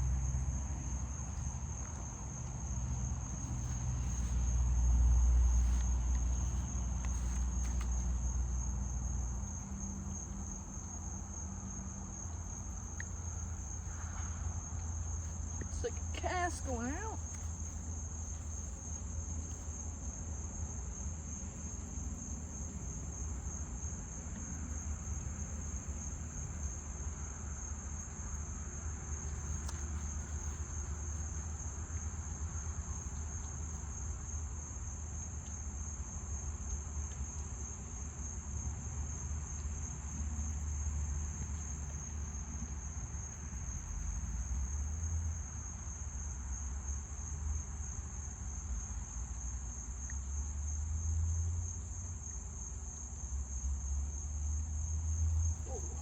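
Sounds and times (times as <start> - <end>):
low steady rumble: 0.0 - 35.1
insects trilling: 0.0 - 56.0.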